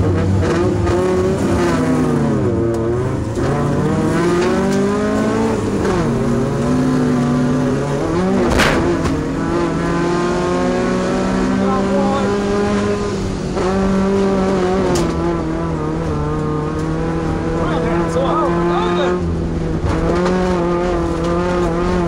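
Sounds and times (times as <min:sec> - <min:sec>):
truck engine revving under load: 0:00.0 - 0:22.0
sharp thump: 0:08.4 - 0:09.2.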